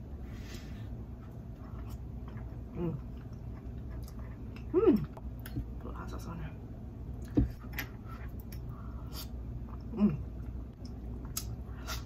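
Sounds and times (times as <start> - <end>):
person chewing: 1.1 - 5.7.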